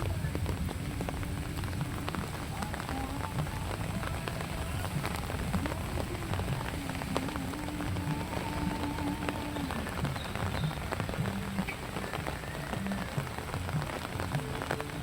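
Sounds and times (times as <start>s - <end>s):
rain drops ticking: 0.0s - 15.0s.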